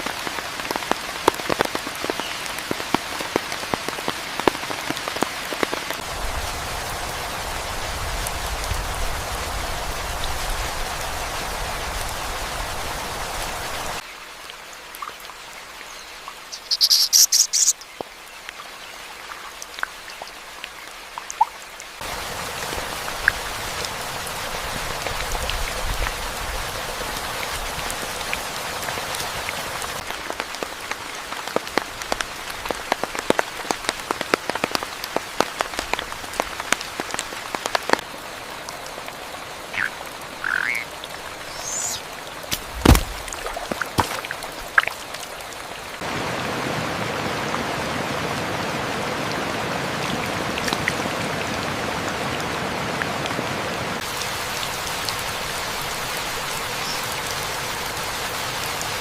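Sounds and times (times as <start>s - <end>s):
rain with heavy drips: 0.0s - 59.0s
frogs croaking: 16.4s - 18.0s, 39.7s - 42.1s
sharp knock: 42.5s - 43.1s.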